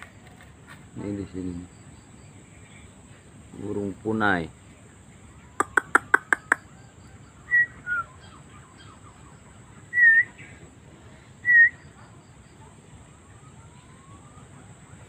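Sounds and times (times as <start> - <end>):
whistled bird calls: 5.5 - 10.6, 11.4 - 12.0.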